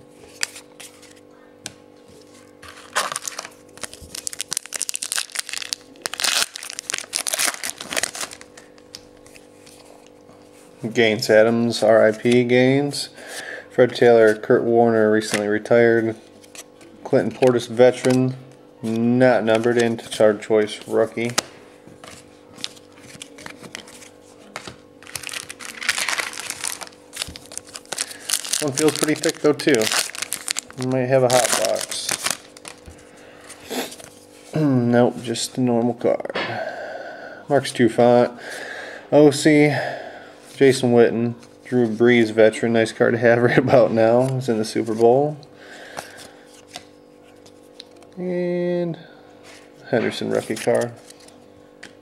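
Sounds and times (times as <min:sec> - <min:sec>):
wrapper tearing and crinkling: 0:02.7 - 0:09.1, 0:22.6 - 0:32.9.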